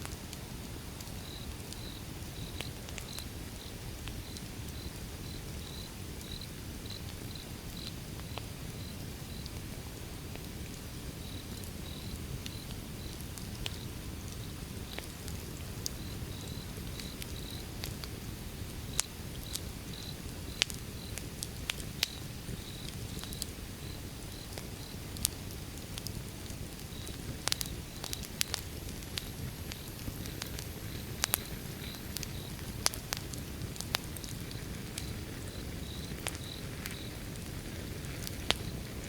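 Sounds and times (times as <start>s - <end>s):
wood fire crackling: 0.0s - 39.0s
insect chirping: 1.2s - 9.4s, 16.0s - 17.6s, 31.3s - 32.6s, 35.5s - 37.1s.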